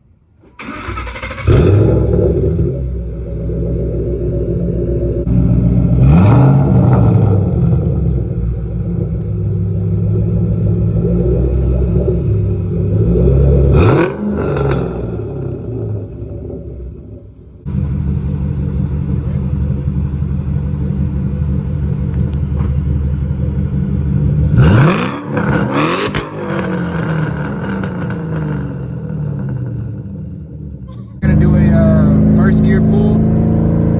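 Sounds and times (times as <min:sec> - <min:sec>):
car engine idling and revving: 0:00.0 - 0:33.9.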